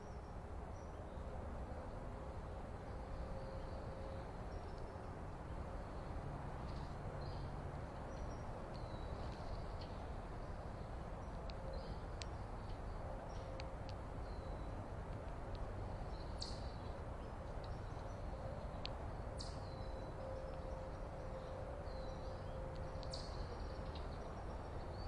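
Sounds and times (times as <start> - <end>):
outdoor background hiss: 0.0 - 25.0
small birds chirping: 6.7 - 25.0.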